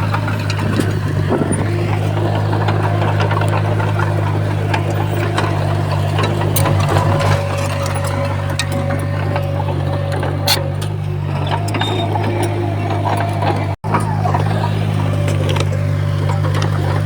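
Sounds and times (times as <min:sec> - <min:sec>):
bulldozer diesel engine running: 0:00.0 - 0:17.0
sharp clanks and clicks: 0:00.0 - 0:17.0.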